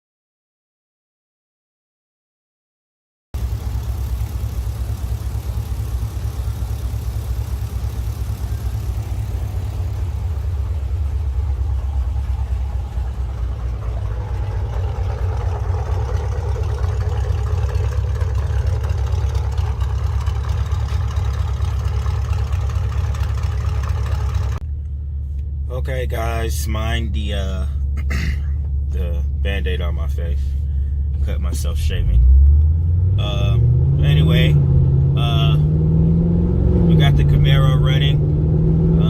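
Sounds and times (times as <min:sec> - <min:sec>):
mid-pitched drone: 0:03.4 - 0:32.1
car engine deep rumble: 0:03.4 - 0:39.0.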